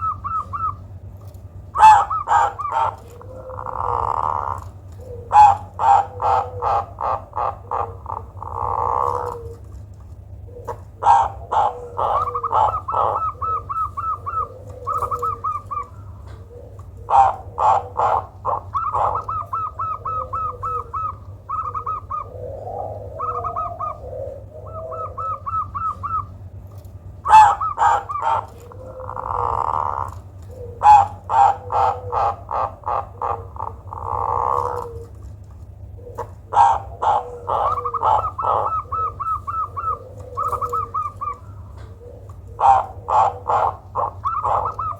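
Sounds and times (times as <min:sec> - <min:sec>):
dove cooing: 0:00.0 - 0:44.9.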